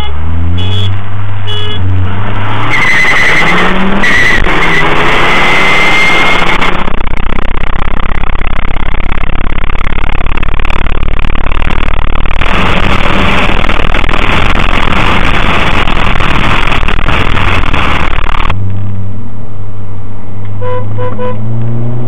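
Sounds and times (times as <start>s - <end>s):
car engine revving hard: 1.8s - 7.5s, 11.6s - 18.6s, 20.9s - 22.0s
fast pulsing rumble: 2.7s - 19.6s.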